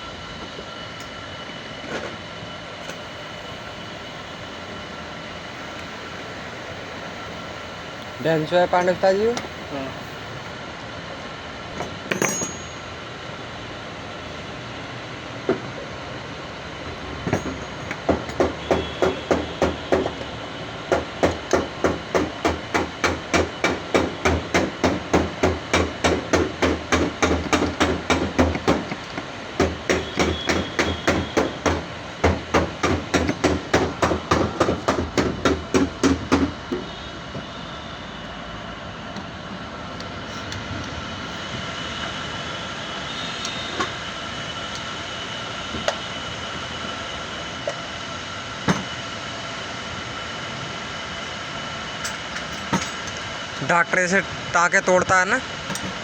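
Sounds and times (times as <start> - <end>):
hammer striking metal: 11.8 - 12.9, 17.3 - 20.2, 20.9 - 36.9.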